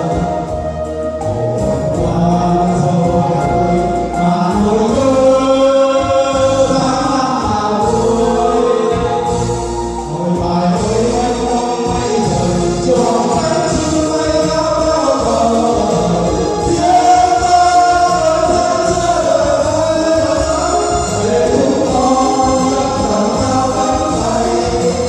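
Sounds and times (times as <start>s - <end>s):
instrumental accompaniment: 0.0s - 25.0s
choir singing held notes: 15.3s - 25.0s.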